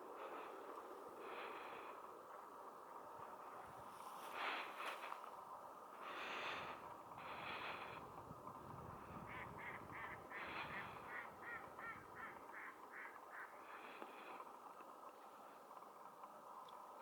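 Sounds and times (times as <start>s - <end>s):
flock of ducks calling: 9.2s - 14.2s.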